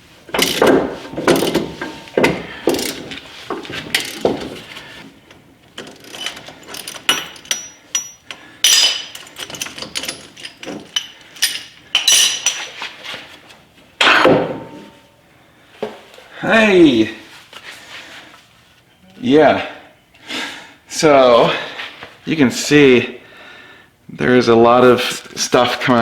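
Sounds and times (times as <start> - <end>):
metallic clicks and clanks: 0.3 - 3.2, 5.3 - 12.7.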